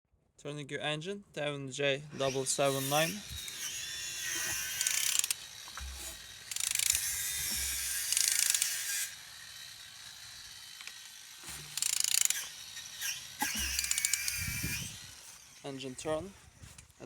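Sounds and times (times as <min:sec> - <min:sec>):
ratchet wrench clicking: 0:04.8 - 0:05.9, 0:06.5 - 0:08.7, 0:11.8 - 0:12.6, 0:13.4 - 0:14.4.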